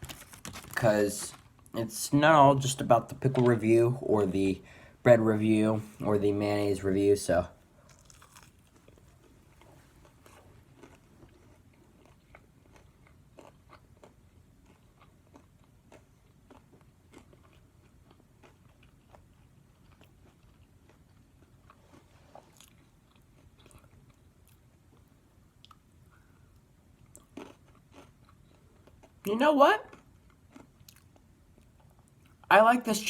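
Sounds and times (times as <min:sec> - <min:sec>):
chewing crunchy food: 0:07.8 - 0:29.3, 0:29.9 - 0:32.5.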